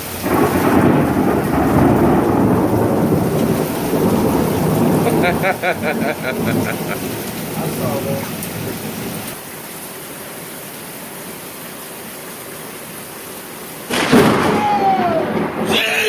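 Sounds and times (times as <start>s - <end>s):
thunder crack and rumble: 0.0s - 9.3s, 13.9s - 16.0s
steady rain: 0.0s - 16.0s.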